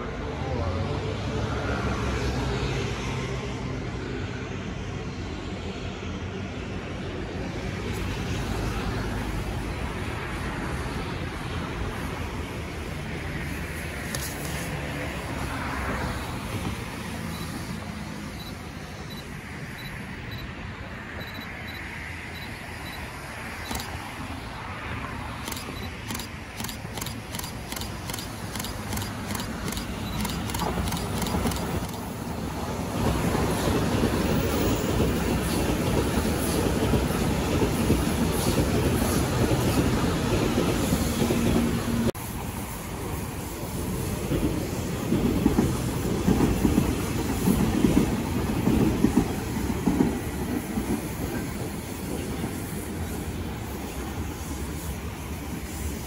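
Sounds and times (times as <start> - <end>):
electric train approaching: 4.6 - 56.0
rapid sharp high clicks: 23.6 - 24.0, 25.4 - 32.1.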